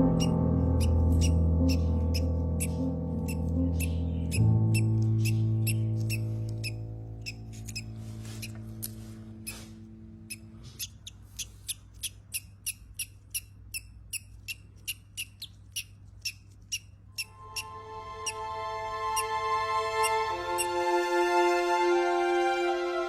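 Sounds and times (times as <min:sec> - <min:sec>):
background music chord: 0:00.0 - 0:10.3, 0:17.3 - 0:23.0
baby bird peeping: 0:00.0 - 0:18.4, 0:20.0 - 0:20.7.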